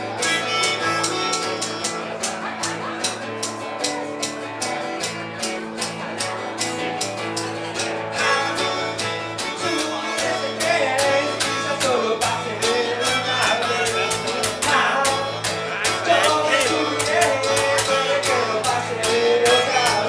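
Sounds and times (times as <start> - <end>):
person singing: 0.0 - 2.2, 8.1 - 20.0
guitar band playing: 0.0 - 20.0.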